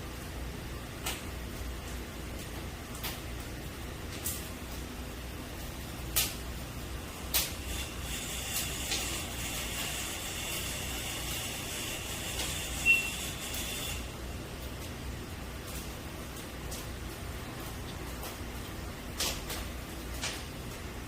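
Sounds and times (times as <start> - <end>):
chicken roasting over fire hiss: 0.0 - 21.0
fire pops: 0.9 - 21.0
high squeak: 12.7 - 14.0.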